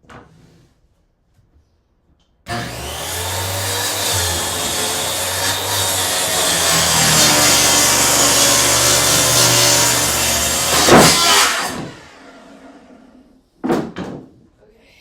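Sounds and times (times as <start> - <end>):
track saw cutting plywood: 2.5 - 13.2.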